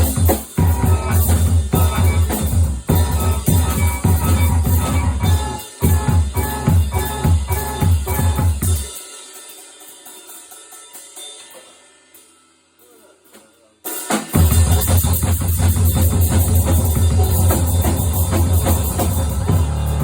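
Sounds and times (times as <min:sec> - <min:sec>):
loud drumming: 0:00.0 - 0:10.2, 0:13.3 - 0:20.0
cymbal wash: 0:13.8 - 0:20.0.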